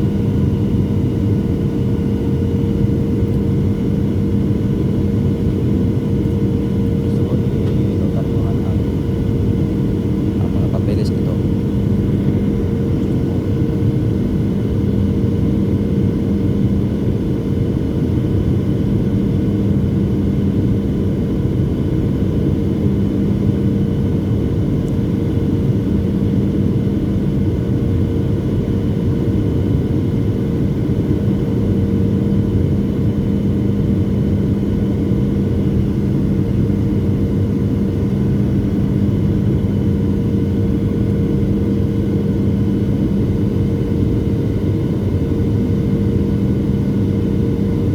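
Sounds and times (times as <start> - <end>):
jet engines droning in cabin: 0.0 - 47.9.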